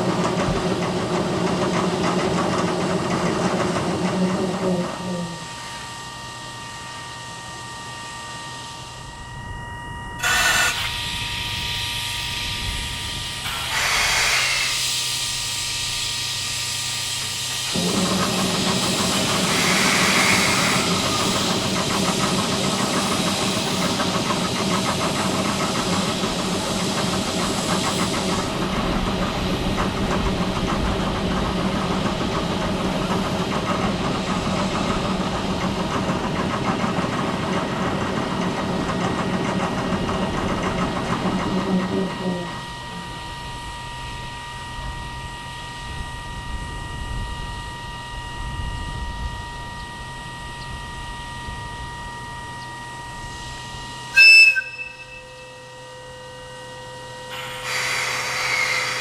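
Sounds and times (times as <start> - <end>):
machine drone: 0.0 - 59.0
locomotive air hissing: 12.9 - 29.8, 57.3 - 59.0.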